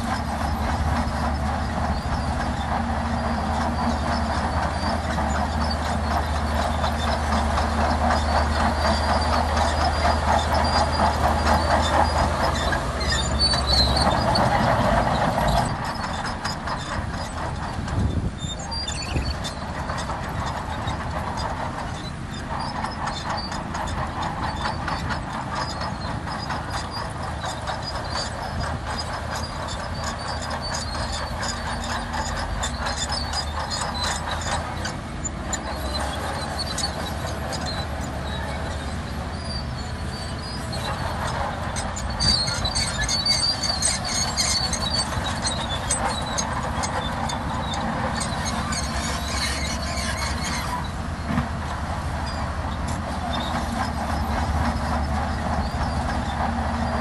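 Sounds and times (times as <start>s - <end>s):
bulldozer engine hum: 0.0s - 57.0s
steel tracks squealing and clanking: 0.0s - 57.0s.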